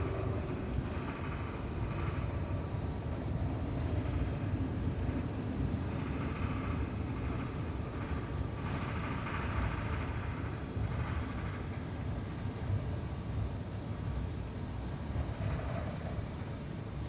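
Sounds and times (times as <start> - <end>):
aircraft cabin rumble and hiss: 0.0 - 17.0.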